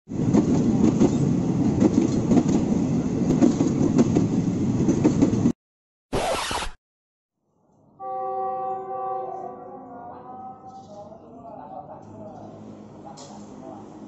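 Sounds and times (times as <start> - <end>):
train rattling on rails: 0.1 - 5.5
brief burst of noise: 6.1 - 6.8.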